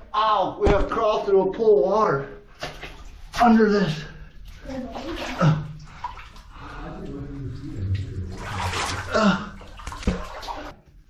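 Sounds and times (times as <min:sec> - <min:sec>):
water splashing and sloshing: 0:02.3 - 0:11.0.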